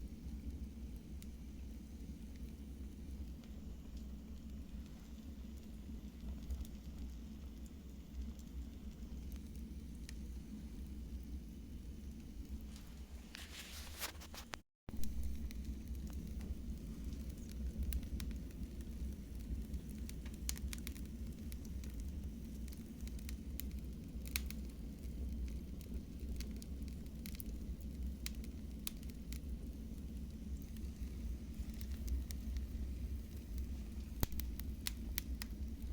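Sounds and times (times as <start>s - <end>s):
wood fire crackling and popping: 0.0s - 35.9s.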